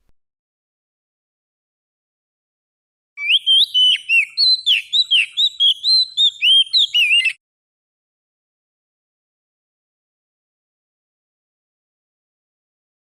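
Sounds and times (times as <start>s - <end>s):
songbird whistled song: 3.2s - 7.4s.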